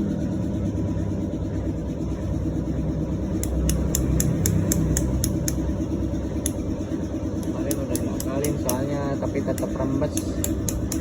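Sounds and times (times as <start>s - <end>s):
motorcycle engine idling: 0.2s - 11.0s
sharp clicks: 3.4s - 5.7s, 7.4s - 11.0s.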